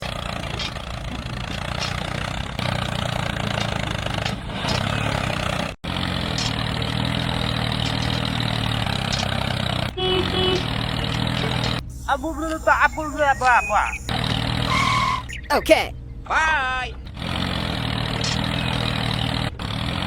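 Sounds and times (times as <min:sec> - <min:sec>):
motor running steadily: 0:07.8 - 0:15.5.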